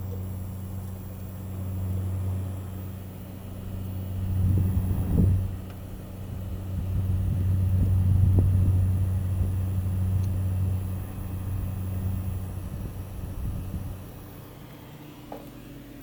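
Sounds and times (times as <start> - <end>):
power supply buzzing hum: 0.0 - 16.0.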